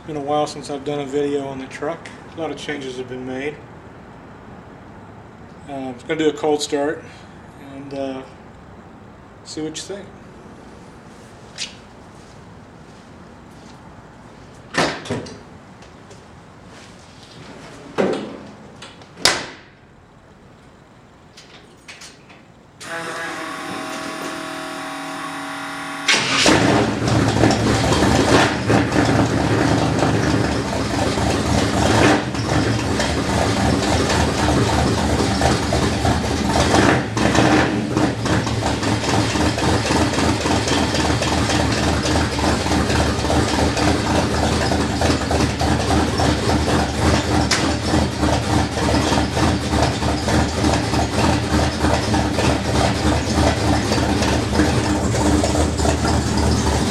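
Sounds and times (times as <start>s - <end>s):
starter motor cranking: 22.8s - 29.3s
truck engine running: 22.8s - 56.9s.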